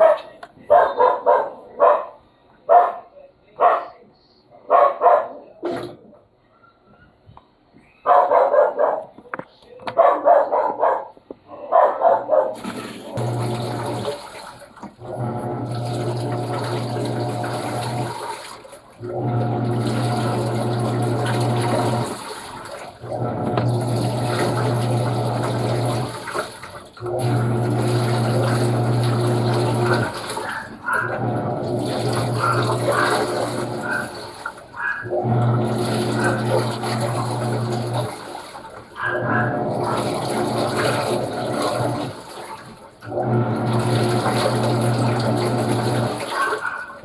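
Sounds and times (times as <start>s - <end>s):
washing machine motor hum: 11.7s - 47.0s
water churning: 12.0s - 47.0s.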